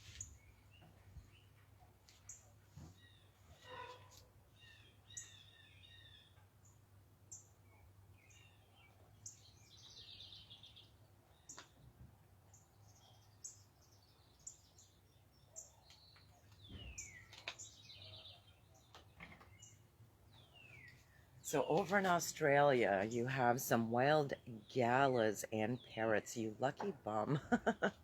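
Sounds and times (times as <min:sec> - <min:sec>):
faint songbird birdsong: 0:00.0 - 0:28.0.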